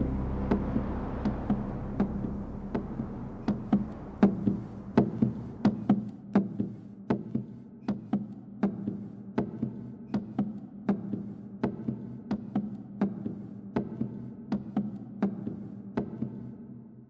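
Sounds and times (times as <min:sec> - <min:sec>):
low background music: 0:00.0 - 0:05.8
steady low hum: 0:00.0 - 0:05.9.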